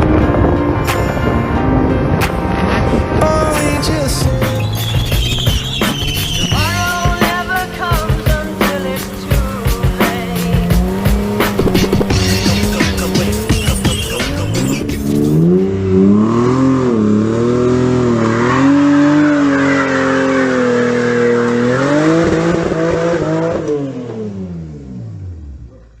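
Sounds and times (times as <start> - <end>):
car engine revving: 0.0 - 26.0
tyres squealing: 4.2 - 7.4, 11.7 - 15.4.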